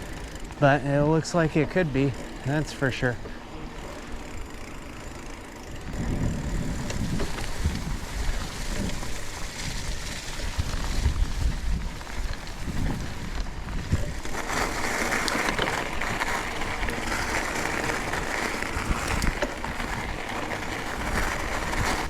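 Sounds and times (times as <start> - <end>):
bicycle tyres rumbling: 0.0 - 22.0
wind on microphone: 5.8 - 14.5, 15.9 - 22.0.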